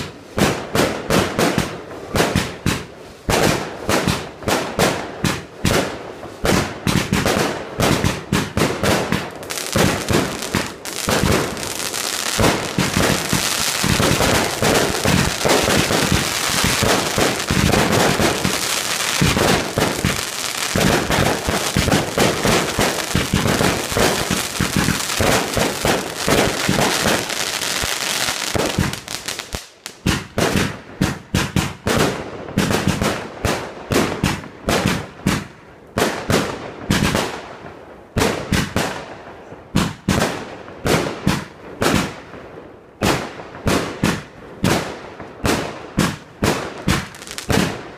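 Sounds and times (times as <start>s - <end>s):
fireworks bangs: 0.0s - 37.4s, 43.0s - 47.9s.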